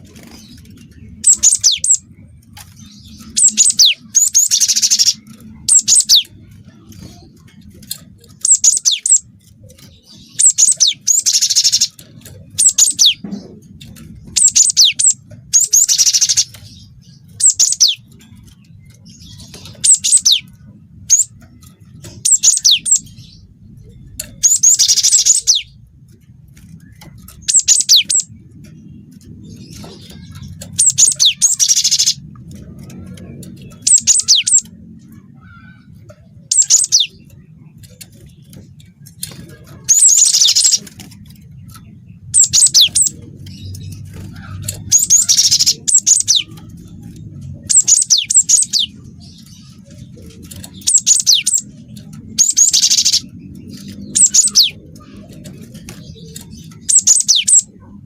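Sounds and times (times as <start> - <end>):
bird singing whistles and trills: 1.2 - 6.3, 8.4 - 12.0, 12.6 - 13.2, 14.3 - 16.7, 17.3 - 18.2, 24.1 - 25.8, 27.0 - 28.3, 33.6 - 34.7, 36.5 - 37.4, 42.3 - 43.9, 47.6 - 49.8, 50.8 - 55.2, 55.9 - 57.7.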